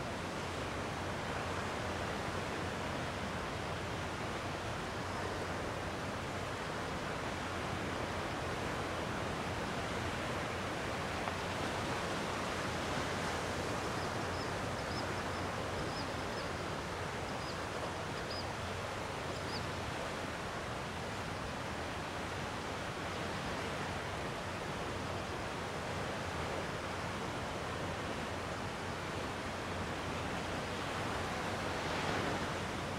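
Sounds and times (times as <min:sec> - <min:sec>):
sea waves washing on shore: 0:19.8 - 0:32.9.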